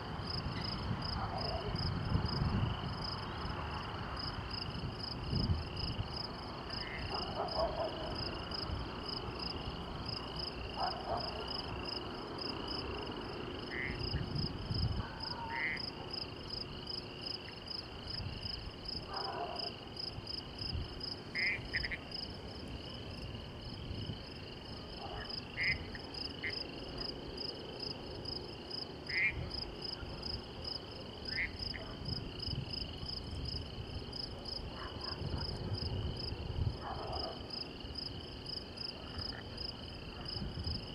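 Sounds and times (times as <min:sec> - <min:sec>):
crickets trilling: 0:00.0 - 0:40.9
frogs calling: 0:06.7 - 0:08.6, 0:12.8 - 0:14.4, 0:15.0 - 0:16.6, 0:21.3 - 0:22.3, 0:25.0 - 0:27.1, 0:29.0 - 0:29.7, 0:31.2 - 0:31.9.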